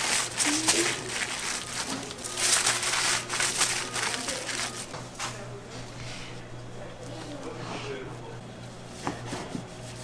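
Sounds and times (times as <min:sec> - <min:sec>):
crinkling and crunching handling noises: 0:00.0 - 0:06.0.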